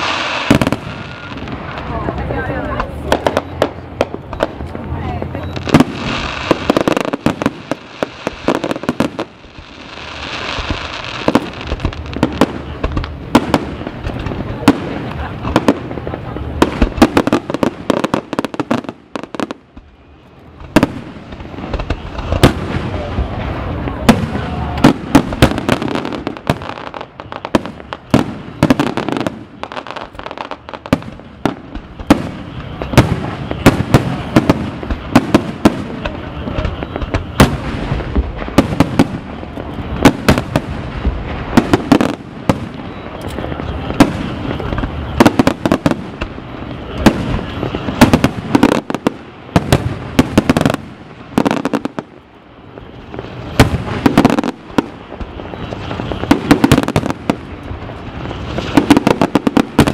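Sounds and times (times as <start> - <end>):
continuous background noise: 0.0 - 59.9.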